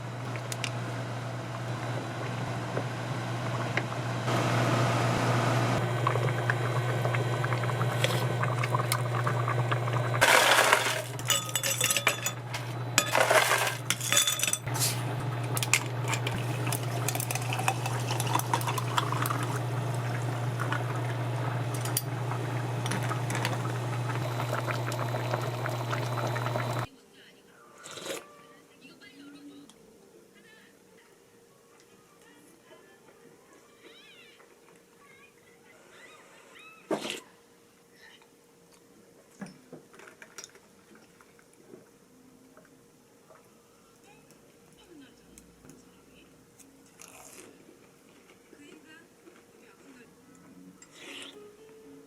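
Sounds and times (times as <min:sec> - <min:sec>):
glass and dishes clinking: 0:11.2 - 0:14.8, 0:15.6 - 0:19.6.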